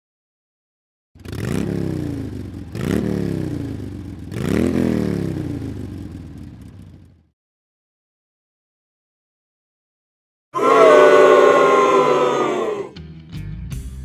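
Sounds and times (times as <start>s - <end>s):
motorcycle engine revving: 1.2s - 7.3s.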